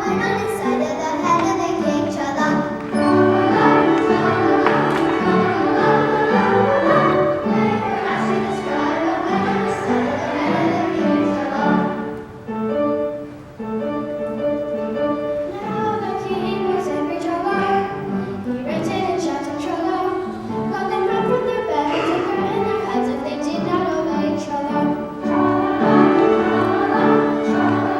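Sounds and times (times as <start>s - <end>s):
children's choir singing: 0.0s - 13.1s, 15.2s - 27.9s
instrumental accompaniment: 0.0s - 19.2s, 19.8s - 27.9s.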